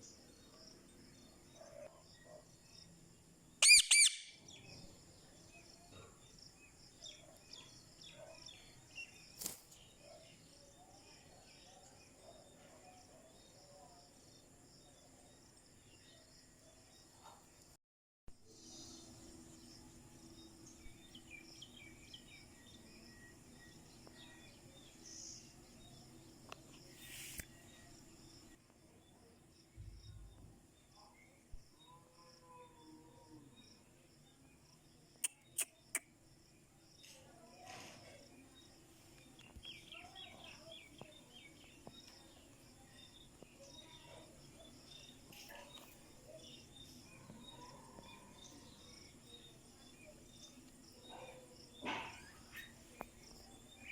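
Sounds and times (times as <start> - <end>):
short bird chirps: 3.6 - 4.4
brief hiss: 26.9 - 27.5.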